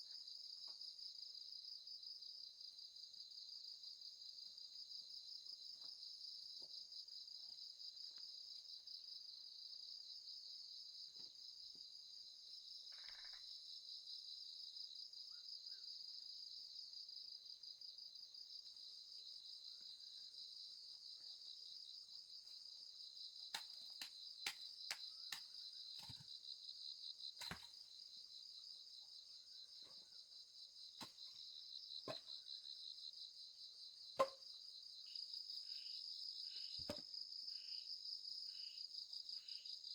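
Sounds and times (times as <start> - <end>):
trilling insects chorus: 12.6 - 39.9.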